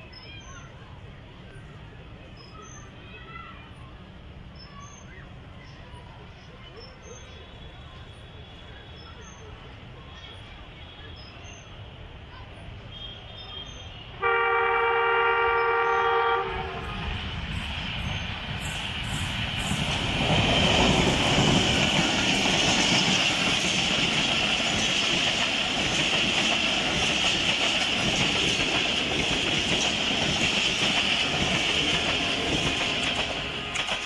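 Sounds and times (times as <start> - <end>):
coaches clickety-clack on rails: 0.0 - 34.0
locomotive passing: 13.8 - 34.0
locomotive horn: 14.2 - 17.2.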